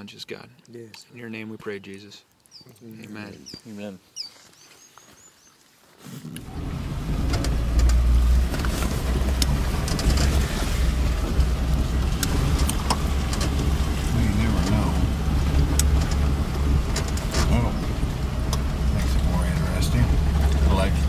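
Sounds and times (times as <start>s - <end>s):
vehicle rumbling on rough road: 6.2s - 21.0s
knocks and rattles: 7.0s - 21.0s.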